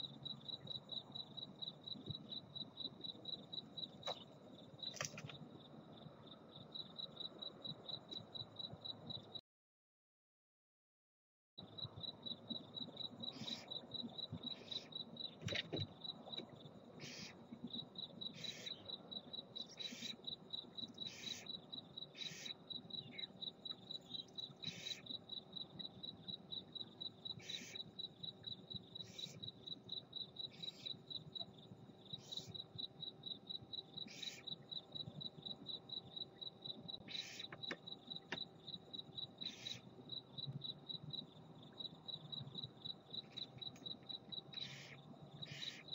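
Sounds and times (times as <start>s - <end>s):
cricket chirping: 0.0s - 9.4s, 11.6s - 45.9s
barn owls hissing: 17.0s - 17.4s, 34.1s - 34.4s, 37.1s - 37.5s, 44.6s - 45.8s.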